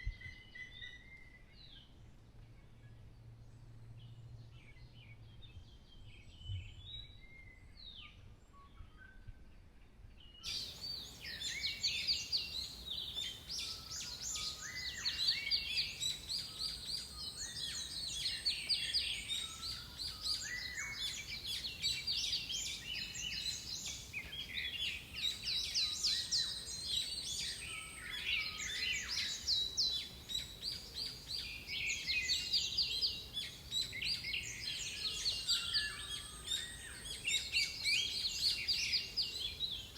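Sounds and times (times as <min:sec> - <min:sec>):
songbirds chirping and singing: 0:10.3 - 0:39.9.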